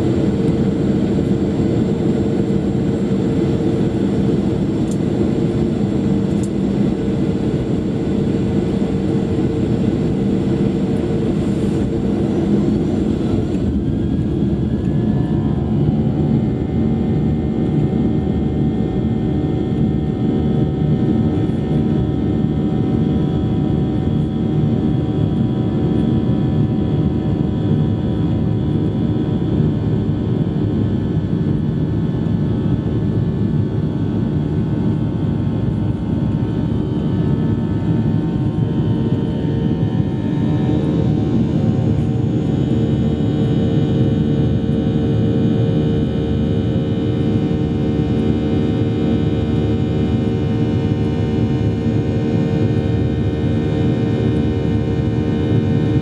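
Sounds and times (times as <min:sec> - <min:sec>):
jet engines roaring: 0:00.0 - 0:27.9, 0:32.8 - 0:56.0.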